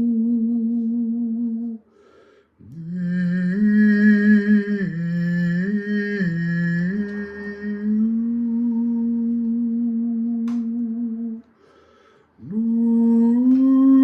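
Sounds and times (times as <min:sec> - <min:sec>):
man singing wordless melody: 0:02.6 - 0:11.4, 0:12.4 - 0:14.0.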